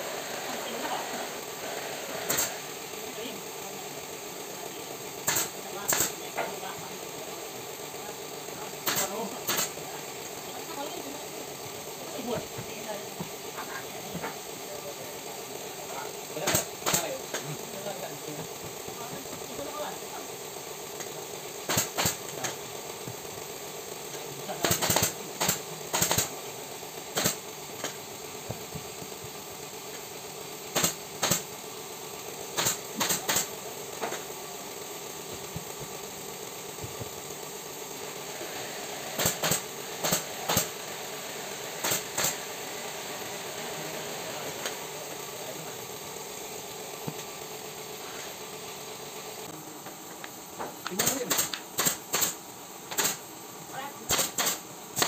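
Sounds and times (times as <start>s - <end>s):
steady mechanical hum: 0.0s - 55.0s
staple gun firing: 5.2s - 6.2s, 8.8s - 9.7s, 21.7s - 22.6s, 24.6s - 26.3s, 30.7s - 31.4s, 32.6s - 33.5s, 39.2s - 40.7s, 41.8s - 42.4s, 51.0s - 53.2s, 54.1s - 55.0s.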